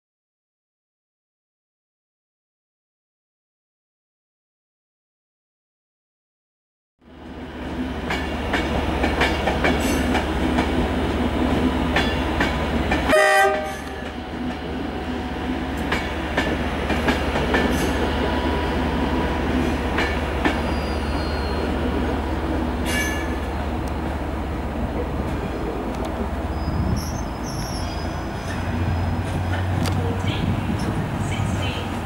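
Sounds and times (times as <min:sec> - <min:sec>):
train rumble: 0:07.0 - 0:32.0
train horn blast: 0:13.1 - 0:14.1.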